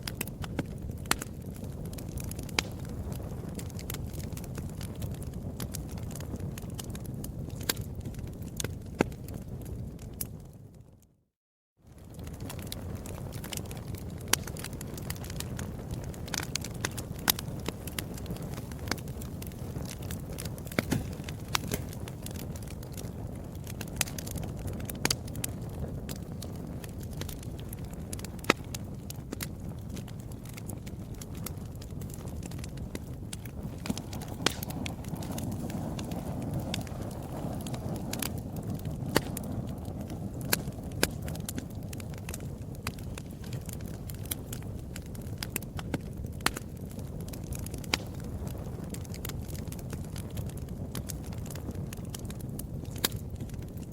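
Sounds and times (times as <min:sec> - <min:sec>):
sharp pops of fire: 0:00.0 - 0:10.5, 0:11.9 - 0:53.9
wood fire crackling: 0:00.0 - 0:11.1, 0:11.9 - 0:53.9.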